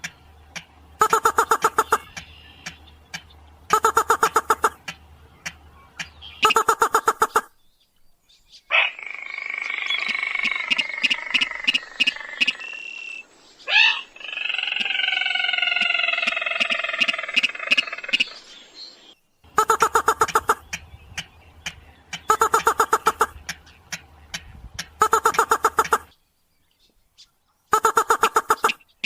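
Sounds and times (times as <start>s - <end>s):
regular clicking: 0.0s - 6.2s
recorded rail calls: 0.0s - 7.5s, 19.5s - 26.1s.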